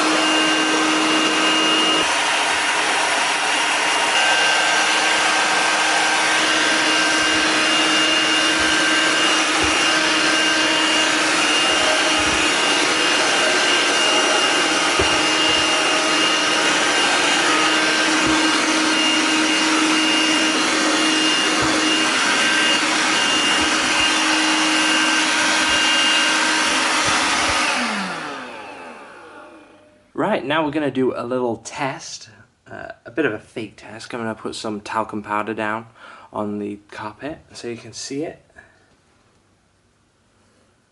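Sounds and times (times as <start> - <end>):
handheld vacuum cleaner whining: 0.0 - 30.0.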